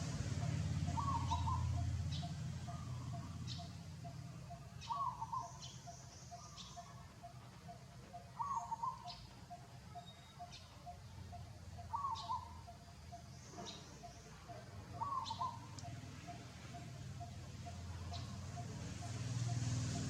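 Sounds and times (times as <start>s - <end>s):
fast pulsing bird call: 0.0s - 20.0s
high bird chirps: 0.4s - 7.0s, 8.3s - 14.3s
short wavering bird call: 0.4s - 7.1s, 7.7s - 14.2s, 15.0s - 19.6s.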